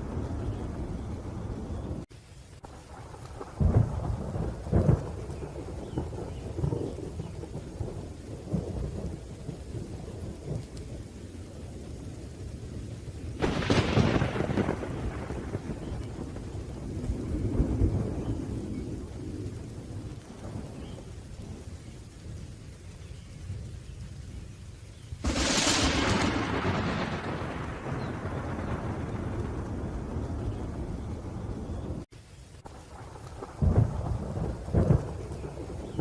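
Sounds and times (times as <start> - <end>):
rolling thunder: 0.0 - 2.1, 2.7 - 24.5, 25.2 - 36.0
steady rain: 0.0 - 36.0
sharp thunderclap: 3.0 - 10.7, 13.4 - 21.6, 25.2 - 32.1, 32.7 - 36.0.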